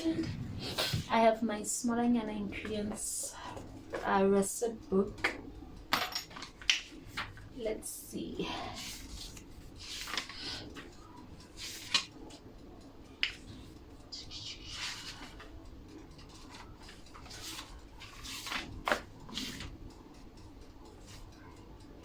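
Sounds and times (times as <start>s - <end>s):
rustling and handling noises: 0.0s - 1.2s, 5.1s - 20.2s.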